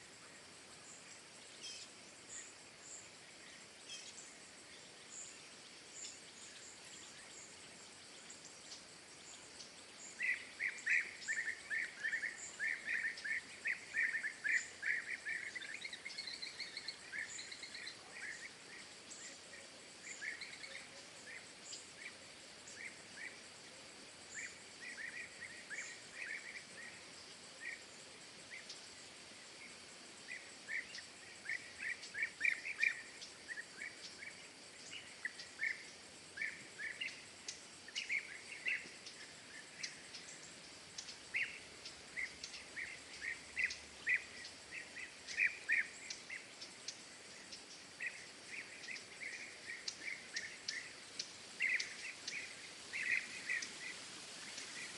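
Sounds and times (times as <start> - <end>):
songbirds chirping: 0.0 - 54.9
steady background hiss: 0.0 - 54.9
high ticks: 37.4 - 37.7, 40.9 - 41.2, 41.8 - 42.7, 46.0 - 47.9, 49.8 - 52.4.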